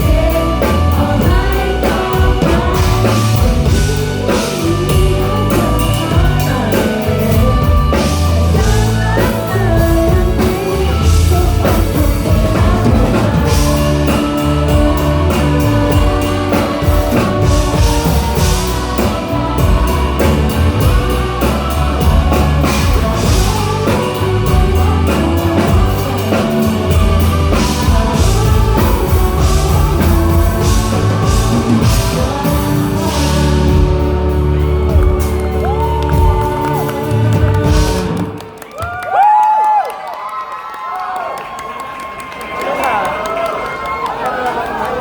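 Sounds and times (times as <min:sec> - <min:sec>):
bass guitar: 0:00.0 - 0:38.7
electric guitar: 0:00.0 - 0:39.0
drum kit: 0:00.0 - 0:39.4
audience shouting and whooping: 0:34.6 - 0:45.0.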